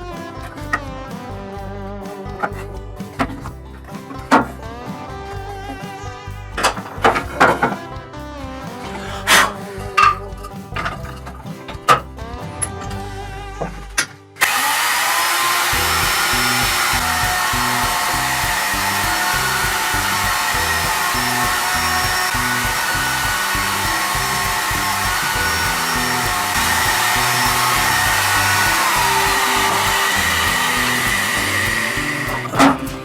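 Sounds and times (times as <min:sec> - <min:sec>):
background music: 0:00.0 - 0:33.0
power tool whining: 0:14.4 - 0:33.0.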